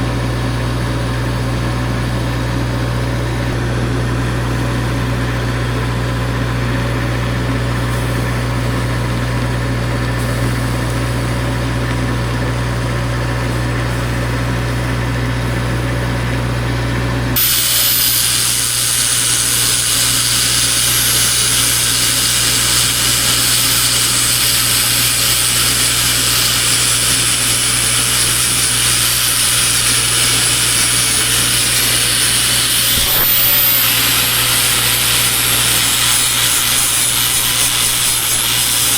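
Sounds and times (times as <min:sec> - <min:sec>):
power tool high-pitched whine: 0:17.4 - 0:38.9.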